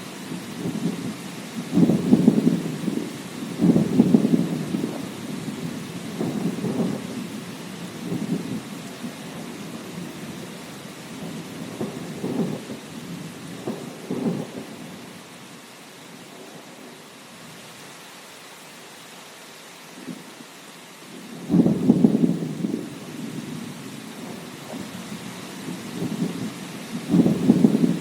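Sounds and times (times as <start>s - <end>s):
steady rain: 0.0s - 28.0s
thunder rumbling and crackling: 0.2s - 15.2s, 21.1s - 28.0s.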